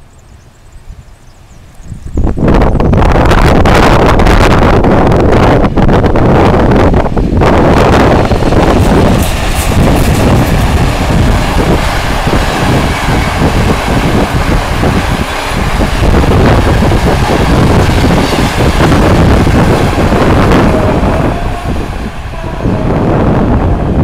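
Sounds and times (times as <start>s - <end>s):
train wheels clattering on rails: 6.9s - 24.0s.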